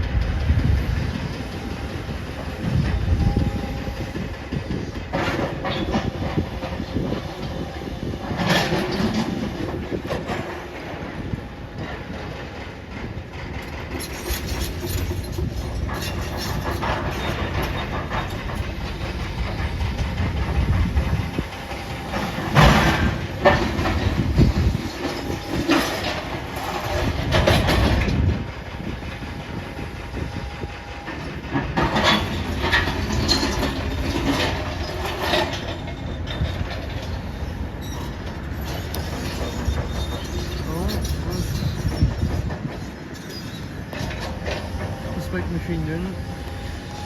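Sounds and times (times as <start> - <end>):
diesel machinery rumble: 0.0 - 47.0
metal clanks: 13.0 - 28.2.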